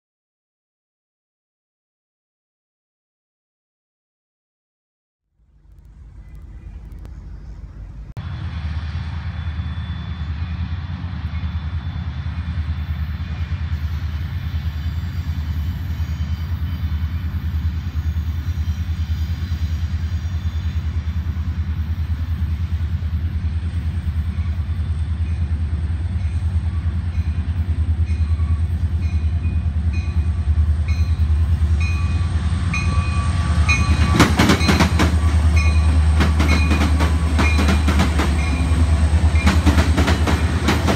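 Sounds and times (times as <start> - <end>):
diesel locomotive engine rumble: 5.3 - 40.9
rail clatter: 32.7 - 40.9.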